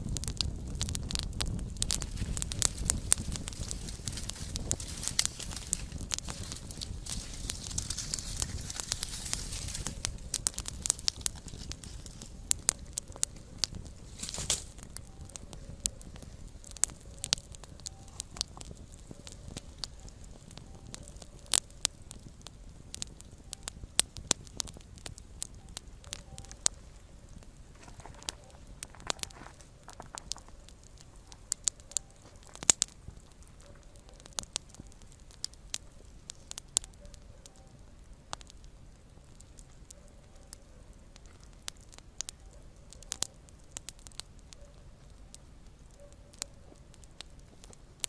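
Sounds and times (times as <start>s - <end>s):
fire hissing: 0.0s - 37.0s
campfire crackling: 0.0s - 48.0s.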